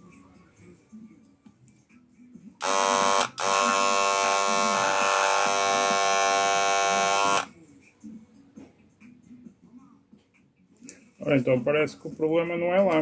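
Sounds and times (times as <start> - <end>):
hair clipper buzzing: 2.6 - 7.5.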